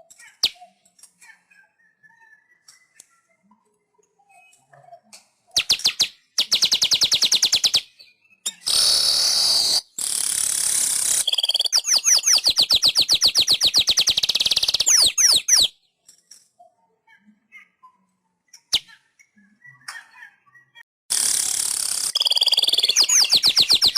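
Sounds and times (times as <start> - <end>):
bird chattering trills: 8.5 - 15.7, 21.1 - 23.9
bird wheezy buzz: 8.6 - 11.9, 21.1 - 23.9
rapid down-slurred bird notes: 21.1 - 23.9.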